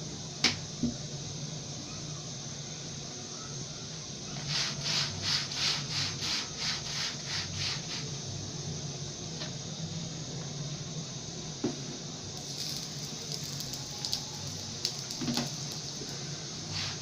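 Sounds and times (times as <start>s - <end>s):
steady low hum: 0.0s - 17.0s
rolling pin rubbing on dough: 4.3s - 8.2s, 16.7s - 17.0s.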